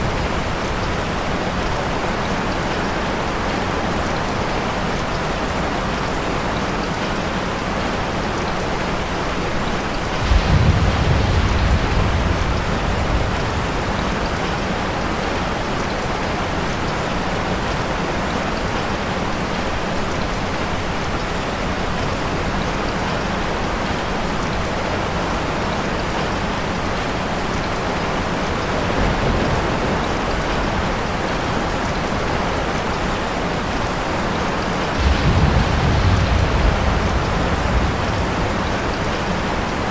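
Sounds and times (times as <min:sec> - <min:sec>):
steady rain falling: 0:00.0 - 0:39.9
thunder rumble: 0:09.8 - 0:15.3, 0:28.5 - 0:32.8, 0:34.7 - 0:39.9.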